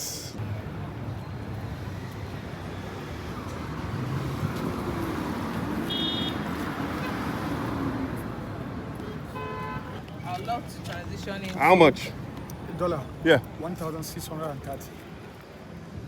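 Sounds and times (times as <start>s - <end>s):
passing vehicles rumbling: 0.0s - 16.0s.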